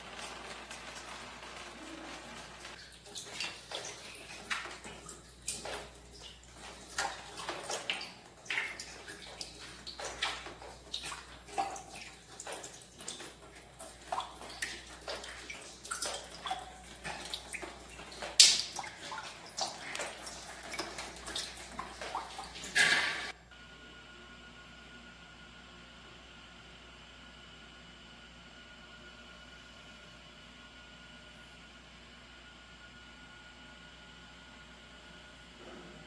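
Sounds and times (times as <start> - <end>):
water dripping and splashing: 0.0 - 23.4.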